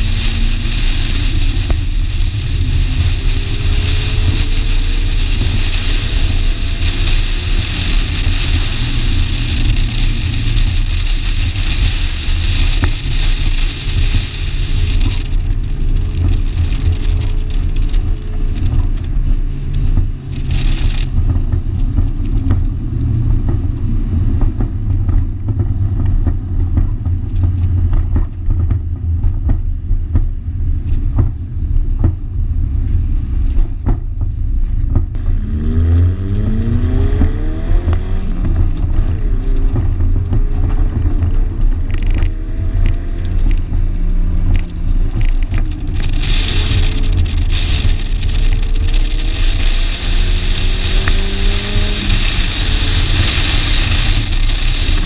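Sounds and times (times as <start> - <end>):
race car engine rumble: 0.0 - 55.0.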